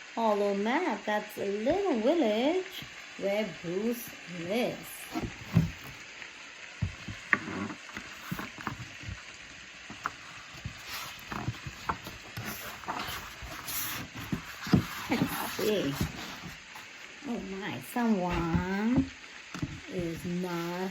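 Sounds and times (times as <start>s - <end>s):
book pages turning: 4.9s - 6.1s, 6.8s - 17.6s, 18.3s - 20.9s
paper rustling: 8.0s - 9.2s, 9.9s - 17.6s.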